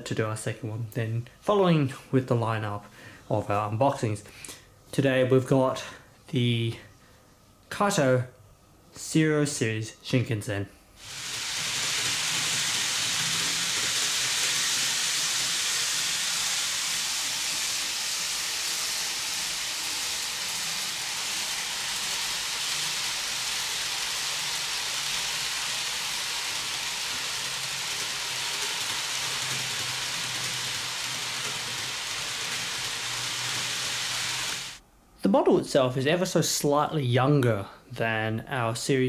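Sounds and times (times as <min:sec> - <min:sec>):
model train wheels and motor hissing: 0:11.0 - 0:34.8.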